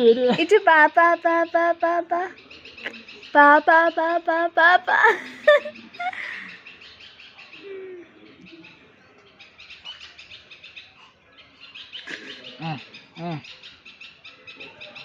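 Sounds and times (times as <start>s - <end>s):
birds chirping: 0.0s - 15.0s
faint low coo: 7.6s - 8.9s, 12.1s - 13.4s.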